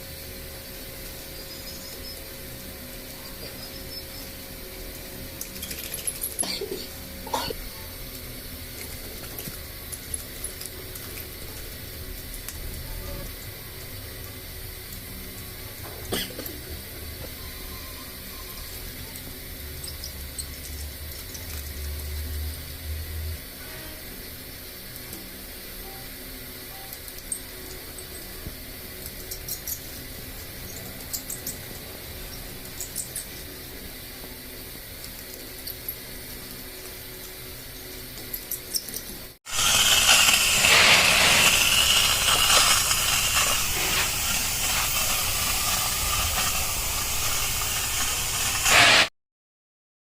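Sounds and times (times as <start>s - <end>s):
compressed air hissing: 39.5s - 49.1s.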